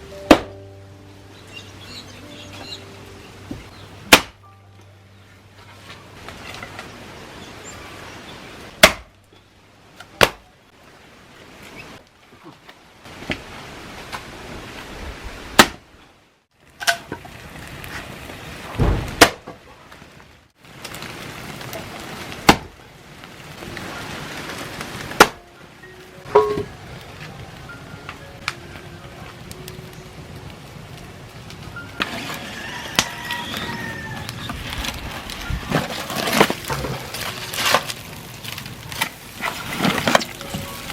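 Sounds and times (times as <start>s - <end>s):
chopping strikes: 0.2s - 0.6s, 3.5s - 4.4s, 8.8s - 9.1s, 15.6s - 15.8s.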